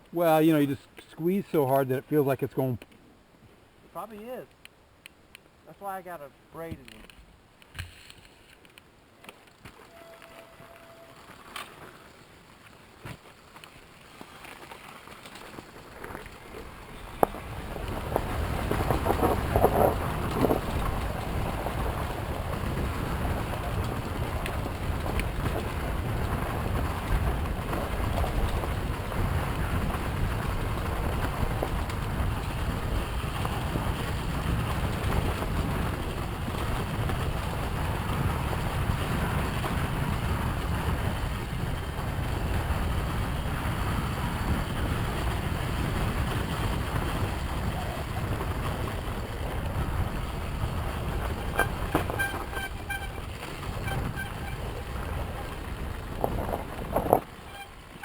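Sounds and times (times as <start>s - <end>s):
pulsed honk-like tones: 9.9s - 11.3s, 51.2s - 55.0s, 57.4s - 58.0s
wind buffeting microphone: 16.5s - 58.0s.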